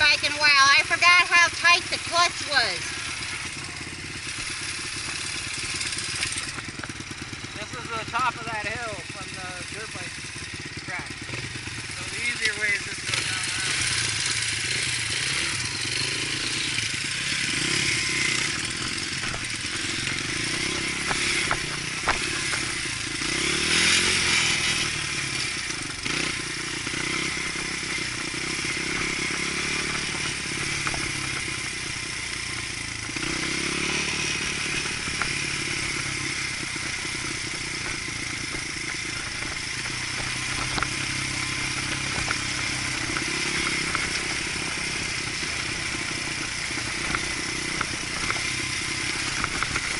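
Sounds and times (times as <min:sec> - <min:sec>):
dirt bike engine revving: 0:00.0 - 0:49.9
bike clattering over rough ground: 0:18.6 - 0:23.6.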